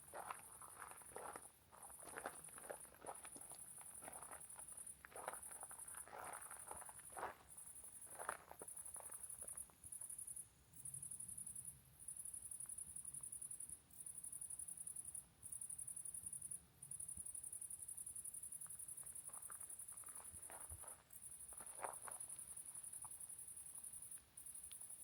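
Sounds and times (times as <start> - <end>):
faint crunches: 0.0 - 9.6, 19.2 - 22.8.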